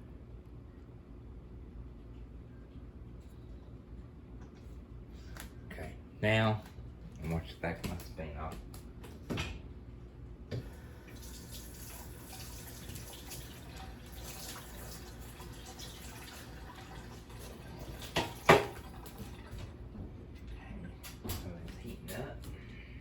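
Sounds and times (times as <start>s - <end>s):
kitchen faucet running: 10.6s - 19.7s.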